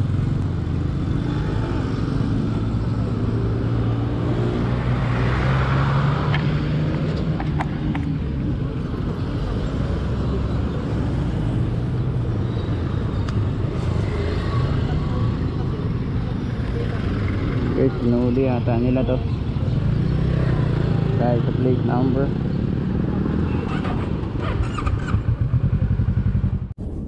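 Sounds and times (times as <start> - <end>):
street traffic: 0.0 - 27.0
motorcycle engine idling: 24.7 - 26.7.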